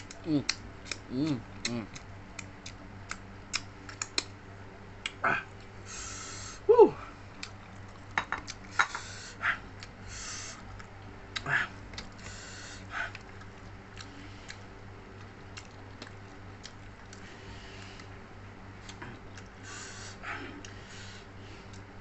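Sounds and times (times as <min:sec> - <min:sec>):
small mouth clicks: 0:00.0 - 0:04.3
chewing and mouth smacking: 0:00.0 - 0:04.4, 0:07.3 - 0:08.8, 0:10.6 - 0:19.6.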